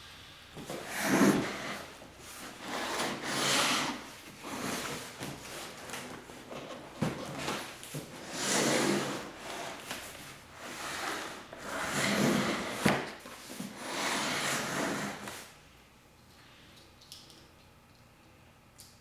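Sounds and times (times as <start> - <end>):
packaging rubbing and scraping: 0.6 - 15.4.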